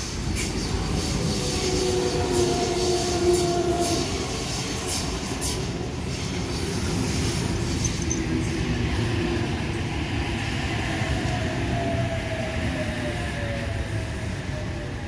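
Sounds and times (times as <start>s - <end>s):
train rumbling: 0.0s - 15.0s
wheels clicking over rail joints: 7.5s - 8.7s.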